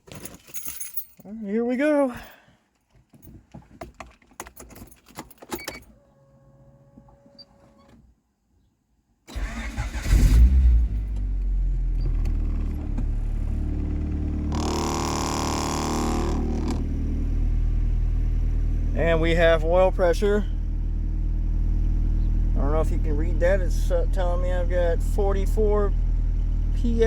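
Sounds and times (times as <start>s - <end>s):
keys jingling: 0.0s - 1.3s, 3.1s - 5.9s
car engine starting and idling: 9.3s - 27.0s.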